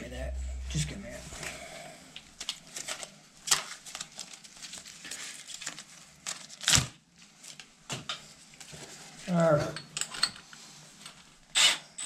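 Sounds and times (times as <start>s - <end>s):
loud thump: 0.1s - 1.7s
plastic packaging crinkling and tearing: 2.5s - 7.6s.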